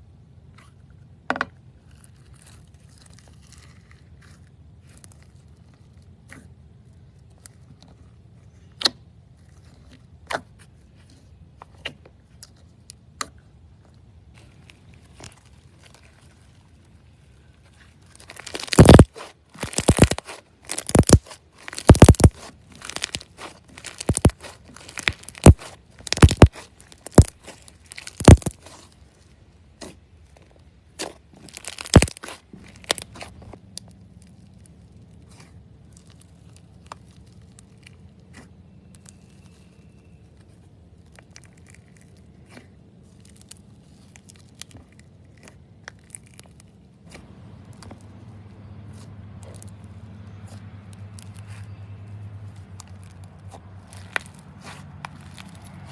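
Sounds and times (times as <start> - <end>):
slime crunching and crackling: 0.4 - 55.9.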